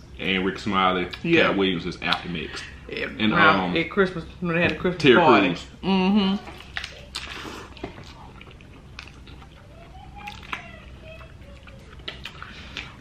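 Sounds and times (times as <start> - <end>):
lip smacks: 6.4 - 13.0
person chewing: 6.4 - 13.0.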